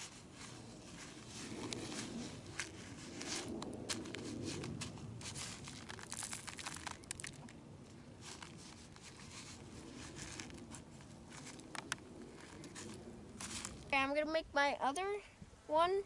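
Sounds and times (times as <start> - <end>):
birdseed rustling and crackling: 0.0 - 14.0.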